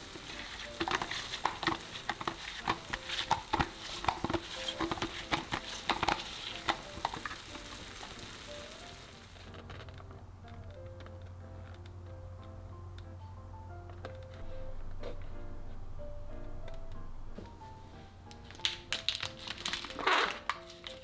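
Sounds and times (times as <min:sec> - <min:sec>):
utensil knocking against pan: 0:00.0 - 0:08.2
food sizzling in a pan: 0:00.0 - 0:09.6.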